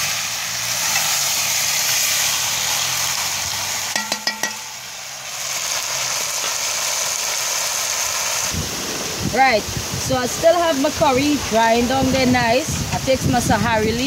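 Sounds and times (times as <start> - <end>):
chicken sizzling in a pot: 0.0 - 14.0
spoon striking metal pot: 3.9 - 4.8.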